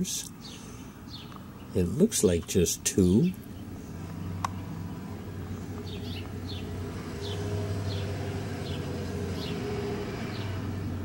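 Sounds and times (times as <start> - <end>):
small bird chirping: 0.4 - 1.8, 3.1 - 9.7.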